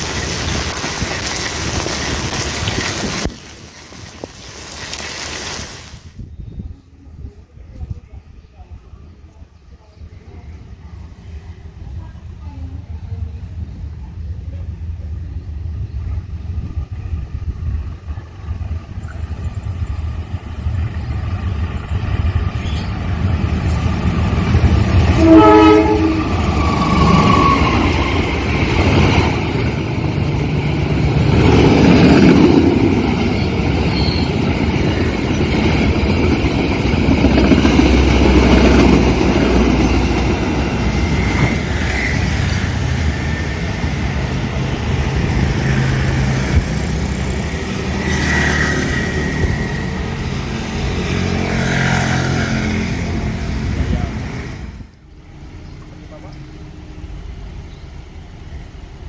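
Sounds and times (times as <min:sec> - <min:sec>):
train rushing and rail clatter: 0:00.0 - 0:05.0, 0:07.8 - 0:59.0
locomotive engine rumble: 0:06.5 - 0:48.2, 0:52.6 - 0:59.0
train horn blast: 0:25.1 - 0:28.0.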